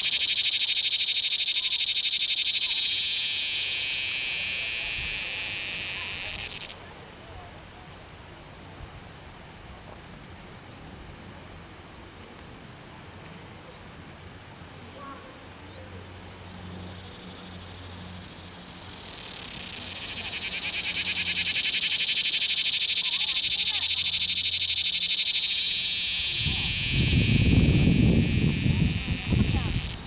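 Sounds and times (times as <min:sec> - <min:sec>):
cicada ticking and buzzing: 0:00.0 - 0:07.4, 0:16.4 - 0:30.0.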